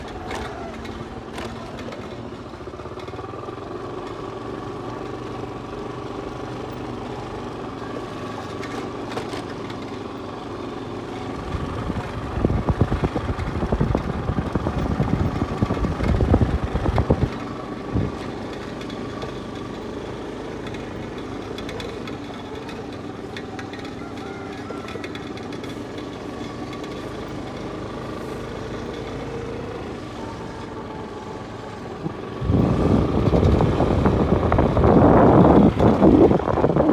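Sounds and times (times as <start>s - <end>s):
rough rattling rumble: 11.2s - 19.6s, 20.7s - 36.9s
mechanical drone: 11.3s - 18.2s, 29.6s - 36.9s.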